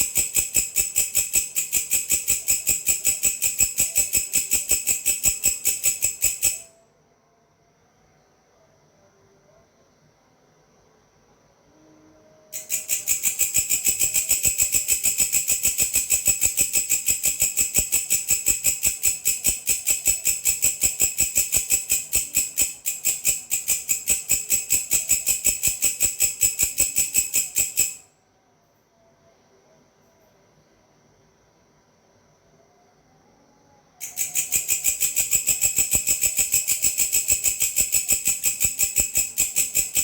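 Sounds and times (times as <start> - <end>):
grasshopper pulsed buzz: 0.0 - 6.7, 12.6 - 28.0, 34.0 - 40.0.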